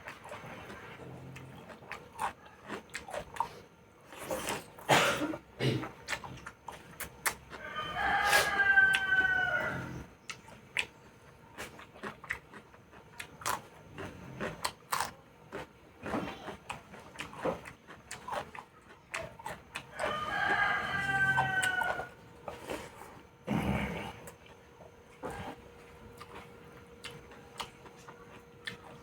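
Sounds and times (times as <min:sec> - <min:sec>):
eating and chewing clicks: 0:00.0 - 0:29.0
rooster crowing: 0:07.5 - 0:10.1, 0:19.9 - 0:22.2.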